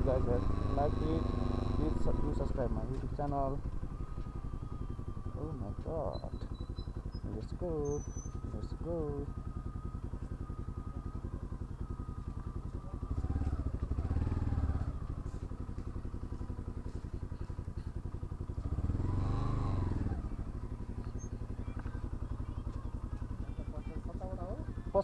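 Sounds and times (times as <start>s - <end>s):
motorcycle engine idling and revving: 0.0s - 25.0s.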